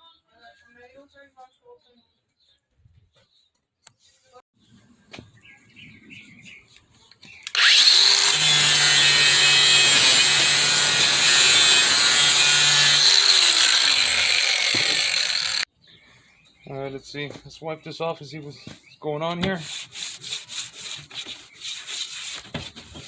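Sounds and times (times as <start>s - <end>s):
angle grinder grinding steel: 7.5s - 15.7s.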